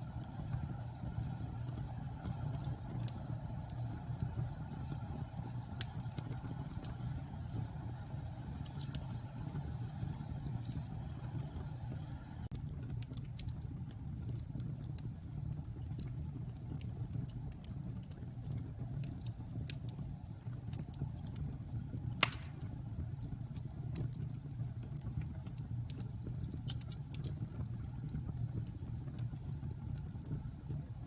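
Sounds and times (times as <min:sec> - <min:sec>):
bonfire rumble and crackles: 0:00.0 - 0:31.0
loud sharp pop: 0:22.2 - 0:22.7.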